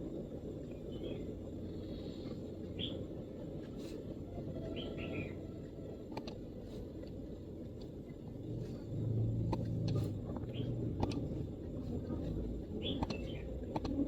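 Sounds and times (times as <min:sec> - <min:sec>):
low background rumble: 0:00.0 - 0:14.0
faint bird chirps: 0:00.7 - 0:03.1, 0:04.3 - 0:06.0, 0:12.2 - 0:13.7.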